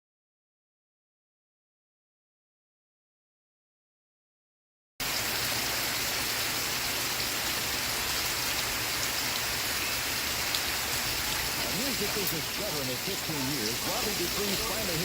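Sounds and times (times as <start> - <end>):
steady rain: 5.0 - 15.0
raindrop ticks: 10.4 - 15.0.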